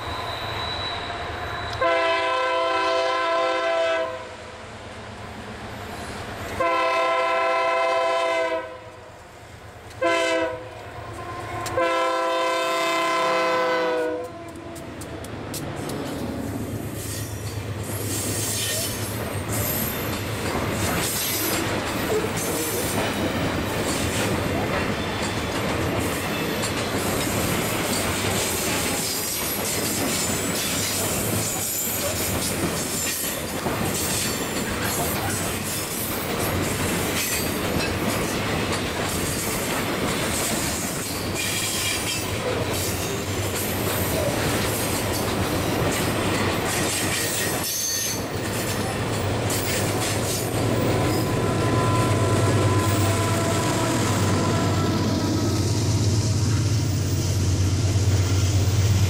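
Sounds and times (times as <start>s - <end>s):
diesel locomotive engine drone: 0.0s - 32.8s, 40.0s - 59.0s
wheels screeching: 49.5s - 57.4s.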